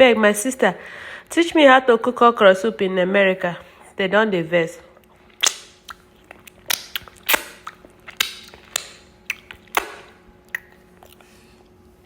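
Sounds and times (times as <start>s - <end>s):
wet smacking and clicking while eating: 4.9s - 11.3s.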